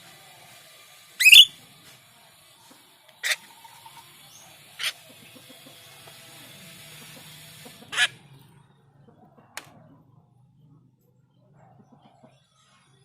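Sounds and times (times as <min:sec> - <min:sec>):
starling sharp calls: 0:01.2 - 0:01.5, 0:04.3 - 0:05.8, 0:07.0 - 0:08.2.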